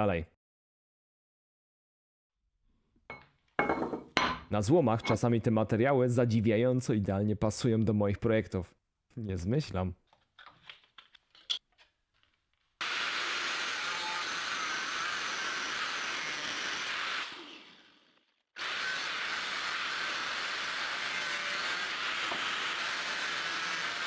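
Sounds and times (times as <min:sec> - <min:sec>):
angle grinder cutting steel: 0:12.8 - 0:24.0.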